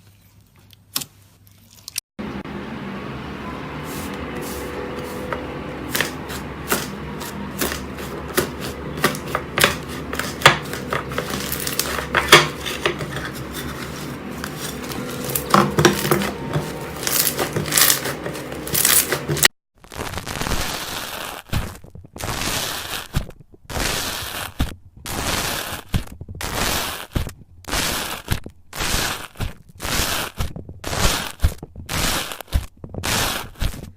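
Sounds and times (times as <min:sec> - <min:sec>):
slime squishing presses: 0:03.9 - 0:19.5.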